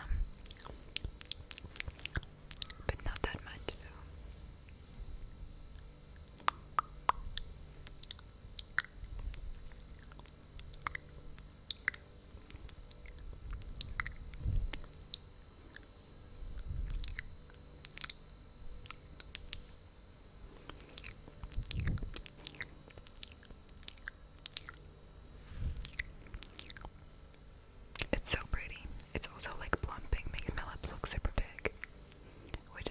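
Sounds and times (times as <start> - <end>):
sticky lips smacking: 0.3 - 3.5, 5.7 - 15.9, 16.8 - 19.7, 20.7 - 24.9, 25.6 - 27.0.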